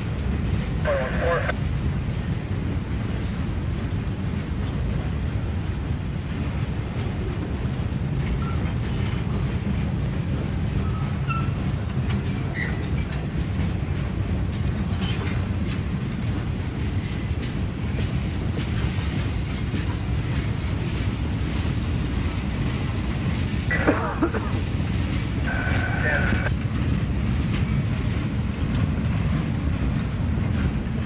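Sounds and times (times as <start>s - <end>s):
freight train wheels rumbling: 0.0s - 31.0s
train wheel clicks: 10.9s - 25.7s.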